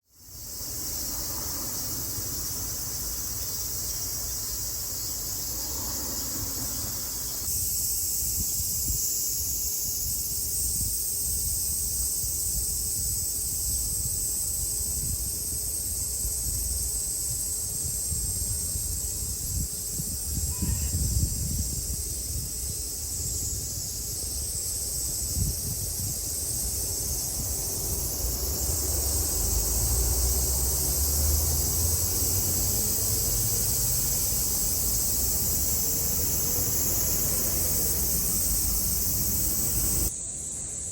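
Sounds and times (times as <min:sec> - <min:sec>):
cicadas buzzing: 0:00.0 - 0:40.9.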